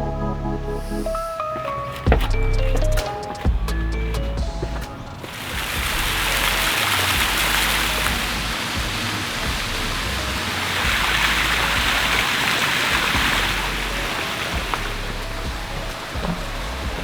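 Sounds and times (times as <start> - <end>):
small waterfall rushing: 5.2 - 17.0.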